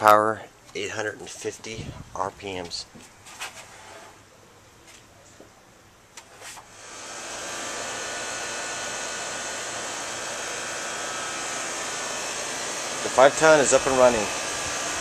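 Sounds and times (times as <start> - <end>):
air conditioner condenser fan running: 6.7 - 15.0.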